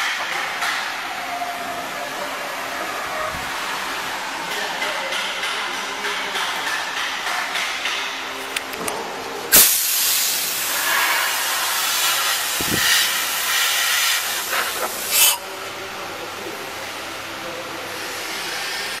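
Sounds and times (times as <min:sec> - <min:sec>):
compressed air hissing: 0:09.5 - 0:15.4.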